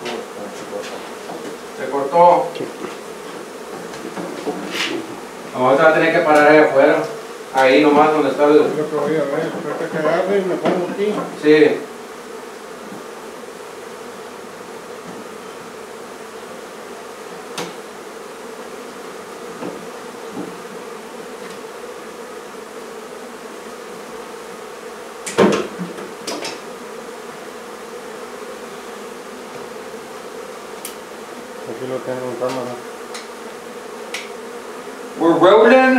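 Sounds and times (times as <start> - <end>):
honey bees buzzing: 0.0 - 35.9
sharp knocks: 25.2 - 26.6.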